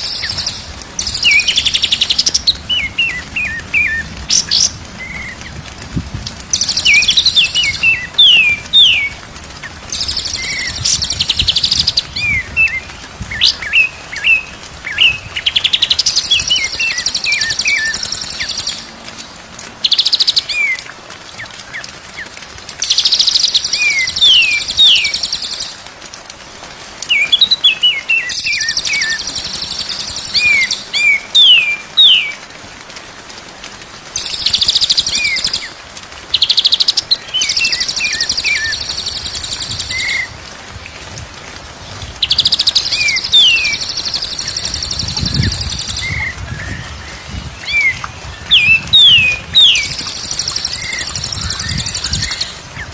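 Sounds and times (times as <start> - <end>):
bird singing whistles and trills: 6.6 - 9.2, 23.0 - 25.7, 27.1 - 32.4, 42.2 - 52.9.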